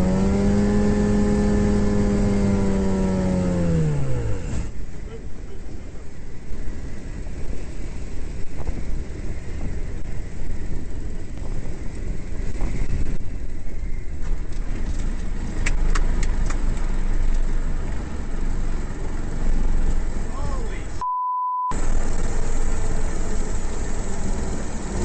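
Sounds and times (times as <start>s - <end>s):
wind noise on microphone: 0.0s - 18.0s
light aircraft engine rumble: 0.0s - 21.0s, 21.7s - 25.0s.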